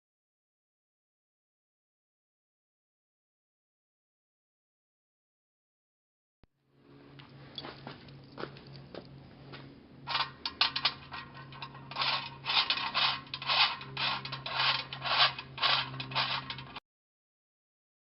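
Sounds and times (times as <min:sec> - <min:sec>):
steady low hum: 0:06.6 - 0:16.8
scraping strokes: 0:10.1 - 0:16.8.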